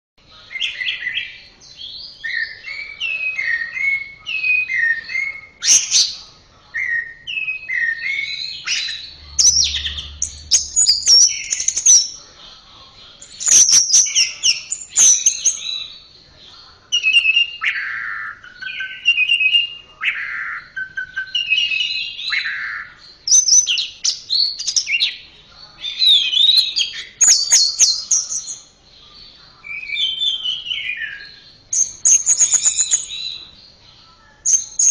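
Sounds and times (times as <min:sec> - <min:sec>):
thrush singing whistled phrases: 0:06.8 - 0:12.2, 0:17.0 - 0:25.2, 0:29.7 - 0:33.5.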